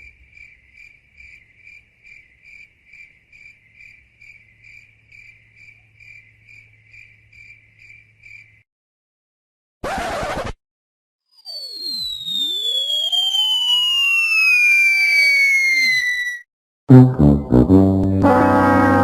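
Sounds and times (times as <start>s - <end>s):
crickets chirping: 0.0s - 8.6s.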